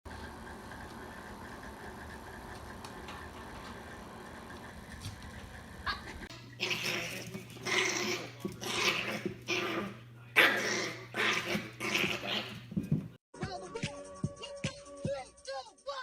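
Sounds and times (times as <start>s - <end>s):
dog growling and barking: 5.8s - 12.8s.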